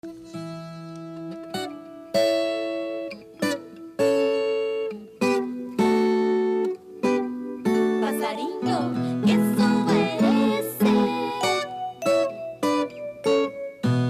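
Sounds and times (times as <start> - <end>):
folk guitar chords strummed: 0.0 - 14.0.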